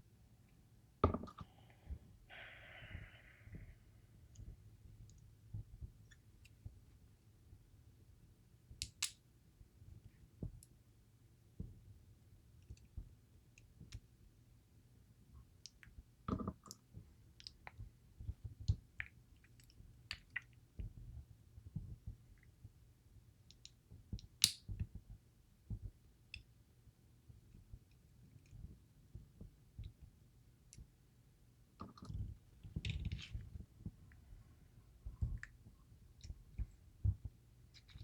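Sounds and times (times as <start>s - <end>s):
small metal clicks and taps: 8.8s - 9.2s.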